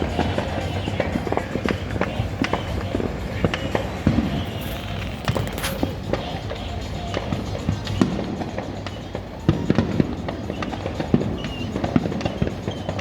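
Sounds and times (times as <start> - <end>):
fireworks popping and banging: 0.0 - 6.5.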